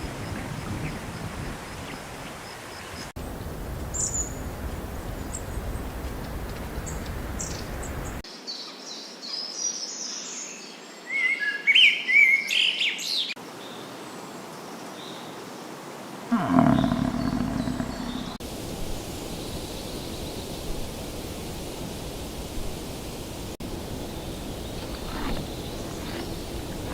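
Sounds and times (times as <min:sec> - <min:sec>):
outdoor background noise: 0:00.0 - 0:26.9
low-pitched animal call: 0:16.3 - 0:18.4.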